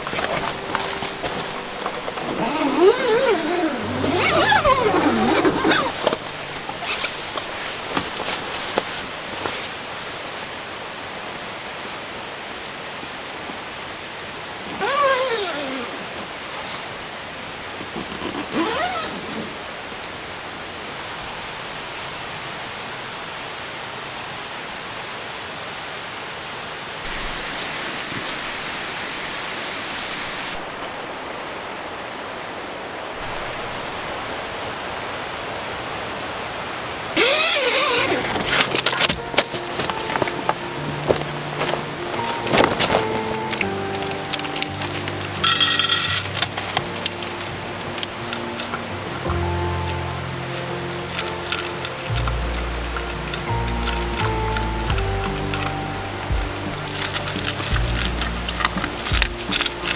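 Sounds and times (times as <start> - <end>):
dog whining: 0.0 - 7.2, 14.7 - 16.9, 17.9 - 19.6
rushing water noise: 0.0 - 59.9
steady hiss: 26.9 - 59.9.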